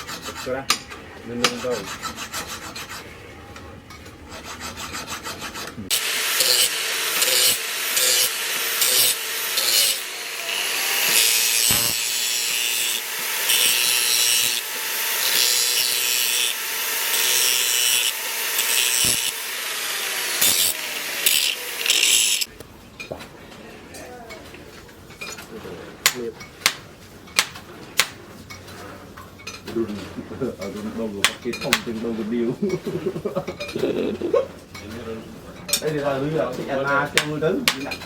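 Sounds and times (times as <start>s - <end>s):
file rasping on steel blade: 0.0s - 3.1s, 4.3s - 22.5s.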